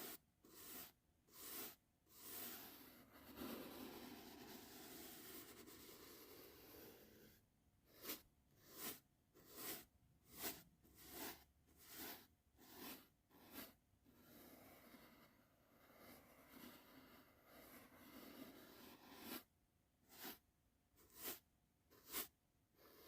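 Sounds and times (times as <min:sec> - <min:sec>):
soft brush strokes swishing: 0:07.9 - 0:13.8.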